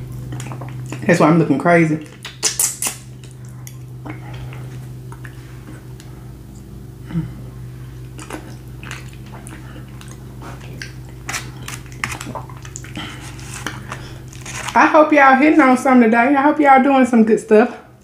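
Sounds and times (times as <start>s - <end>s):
chewing: 0.0s - 1.1s, 2.0s - 6.7s, 7.9s - 14.8s
steady low hum: 0.0s - 18.0s.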